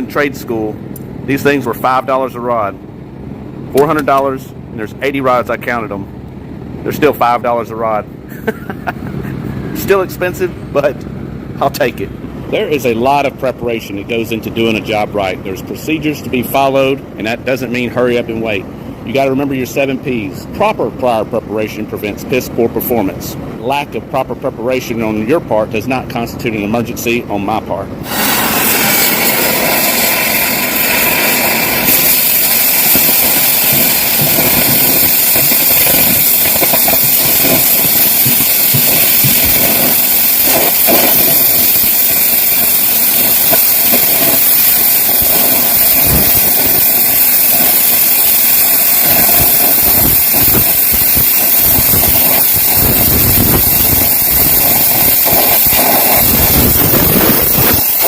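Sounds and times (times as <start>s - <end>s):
welding arc crackling hiss: 28.0s - 58.0s.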